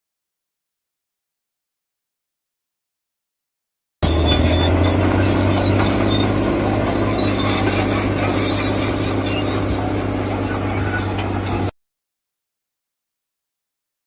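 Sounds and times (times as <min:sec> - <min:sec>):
high-pitched motor whine: 0:04.0 - 0:11.7.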